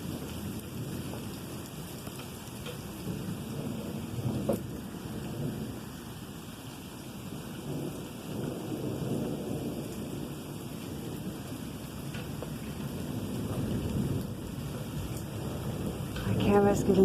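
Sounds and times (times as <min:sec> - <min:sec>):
rolling thunder: 0:00.0 - 0:17.0
steady rain: 0:00.0 - 0:17.0.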